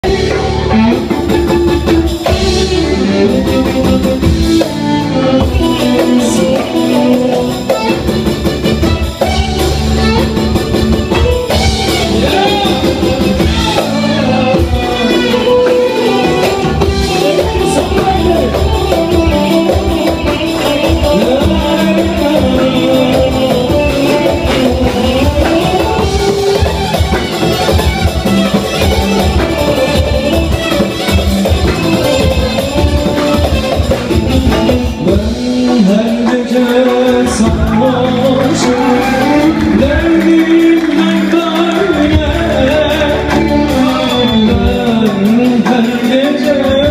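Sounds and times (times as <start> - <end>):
live music with singing: 0.0 - 46.9
steady percussion beat: 0.0 - 46.9.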